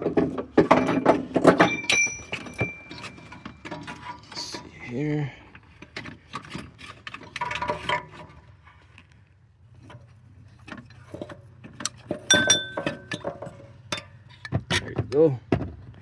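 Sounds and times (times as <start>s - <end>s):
metal clanks and clinks: 0.0s - 4.8s, 5.8s - 8.3s, 10.8s - 15.0s.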